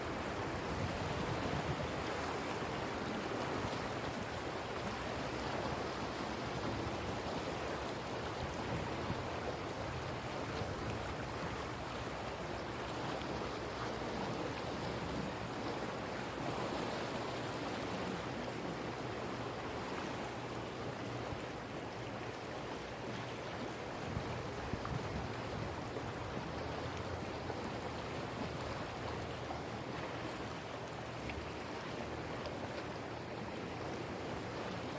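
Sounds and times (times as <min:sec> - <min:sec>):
sea waves breaking: 0:00.0 - 0:34.9.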